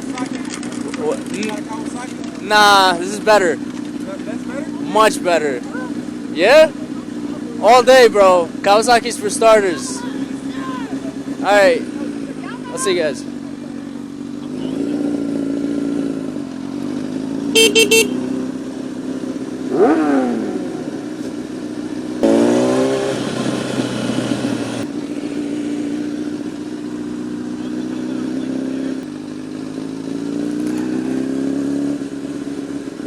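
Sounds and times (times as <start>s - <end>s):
motorcycle engine revving: 0.0s - 33.0s
motorcycle horn beeps: 17.5s - 18.4s.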